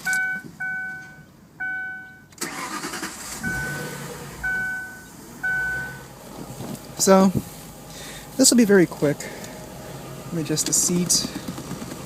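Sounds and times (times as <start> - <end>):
electronic warning chime: 0.0 - 2.3, 3.2 - 6.0
car engine cranking and starting: 0.0 - 12.0.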